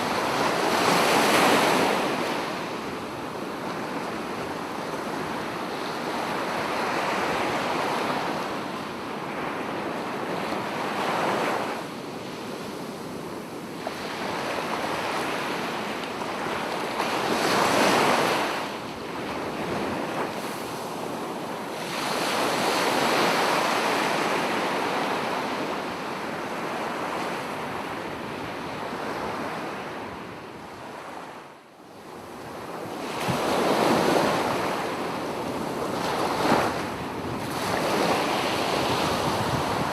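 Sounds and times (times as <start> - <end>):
sea waves breaking on beach: 13.8 - 30.0, 32.4 - 39.9.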